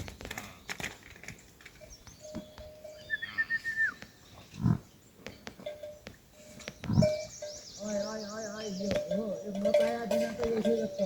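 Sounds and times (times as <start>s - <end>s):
short high chirping call: 2.0s - 4.2s
low animal call: 2.4s - 4.9s.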